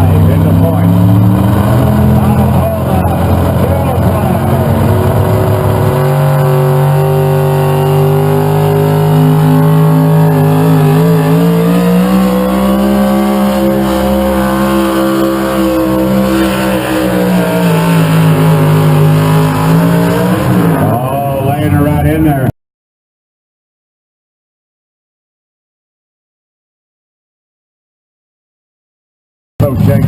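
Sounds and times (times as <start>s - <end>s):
tractor engine running hard: 0.0s - 22.0s.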